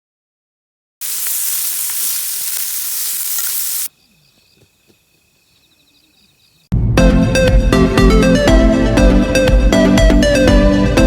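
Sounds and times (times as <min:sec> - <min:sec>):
loud sizzling hiss with pops: 0:01.0 - 0:05.3
faint high chirping: 0:01.0 - 0:06.7.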